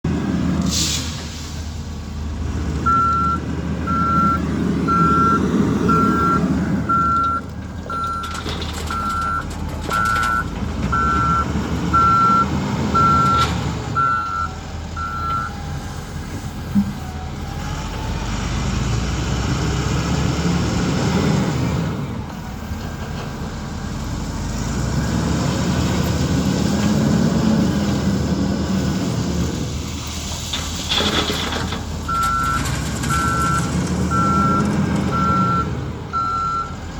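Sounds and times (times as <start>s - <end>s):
heavy diesel machinery working: 0.1s - 36.9s
reversing alarm beeping: 2.9s - 13.4s, 14.0s - 15.8s, 32.1s - 36.8s.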